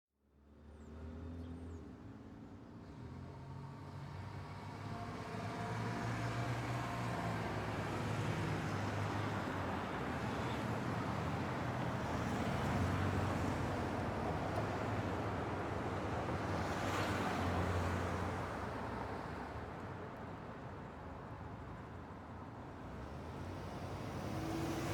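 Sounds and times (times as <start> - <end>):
passing road traffic: 21.6 - 24.9.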